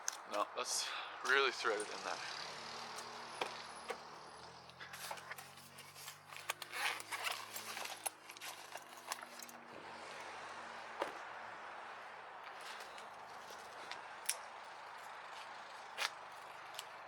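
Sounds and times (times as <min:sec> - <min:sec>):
straps rustling: 0:04.7 - 0:11.2, 0:12.3 - 0:17.0
clicks and scrapes of hardware: 0:04.9 - 0:09.6.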